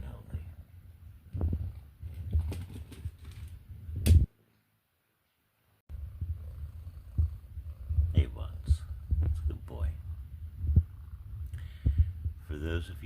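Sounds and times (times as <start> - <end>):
low rumble: 5.9 - 13.0.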